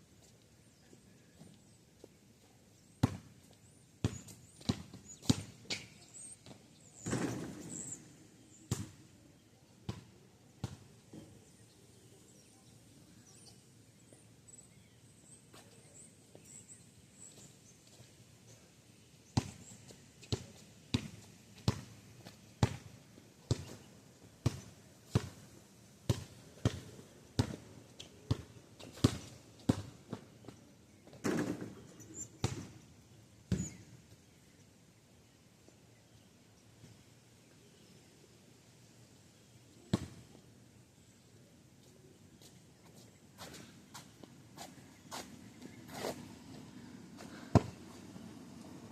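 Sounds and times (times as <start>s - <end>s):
basketball bouncing on pavement: 3.0s - 3.3s, 4.0s - 5.8s, 8.7s - 9.0s, 9.9s - 11.4s, 19.4s - 19.6s, 20.3s - 23.8s, 24.4s - 25.5s, 26.1s - 27.7s, 28.3s - 30.3s, 32.4s - 32.7s, 33.5s - 33.8s, 39.9s - 40.3s, 47.5s - 47.8s.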